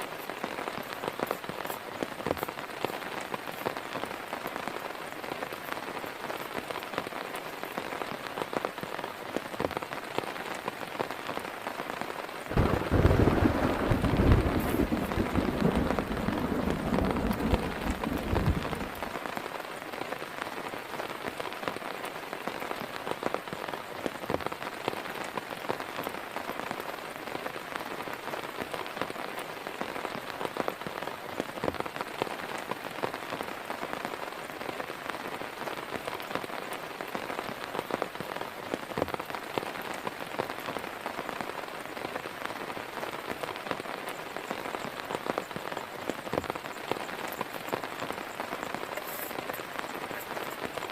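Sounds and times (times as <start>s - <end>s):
rain drops tapping on a surface: 0.0s - 50.9s
low thunder rumble: 12.5s - 19.2s.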